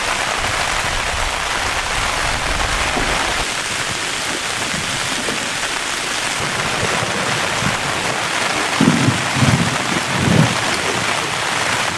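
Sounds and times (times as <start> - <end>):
heavy rain falling: 0.0 - 11.9
short low rumbles: 6.4 - 11.2.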